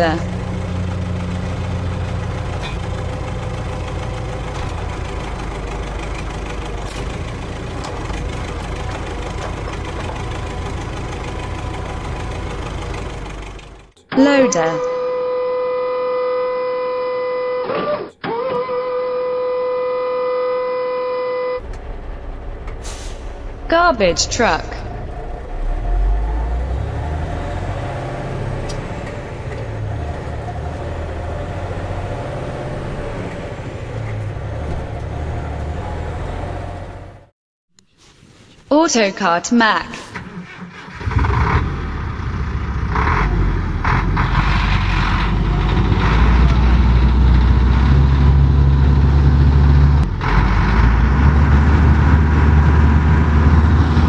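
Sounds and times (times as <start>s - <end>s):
truck engine starting and rumbling: 0.0s - 54.0s
long horn-like tone: 14.8s - 17.6s.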